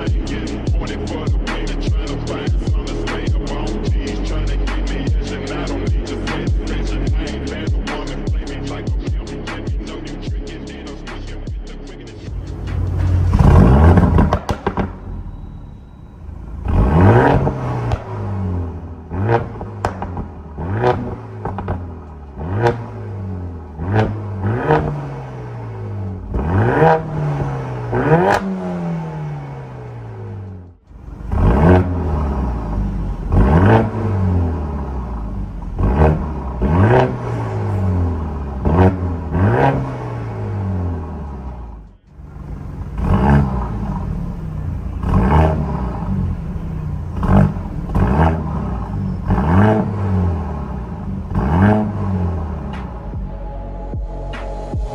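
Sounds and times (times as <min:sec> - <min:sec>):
car engine throttle blips: 0:12.2 - 0:54.6.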